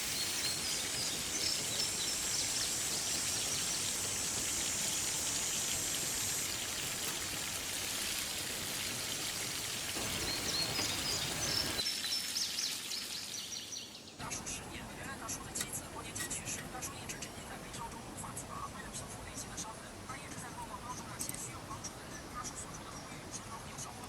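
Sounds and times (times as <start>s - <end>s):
creek rushing: 0.0s - 11.8s
birds chirping: 0.0s - 19.7s.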